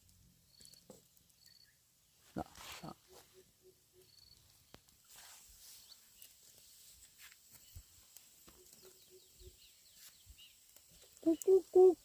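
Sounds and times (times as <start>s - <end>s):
bird hooting: 11.2s - 12.0s.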